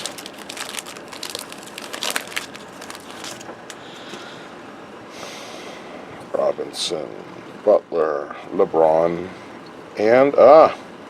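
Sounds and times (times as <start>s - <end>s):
wrapper crinkling: 0.0s - 3.5s.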